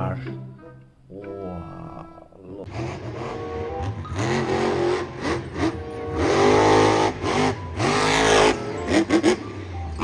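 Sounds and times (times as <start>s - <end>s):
car engine revving: 2.7s - 9.7s.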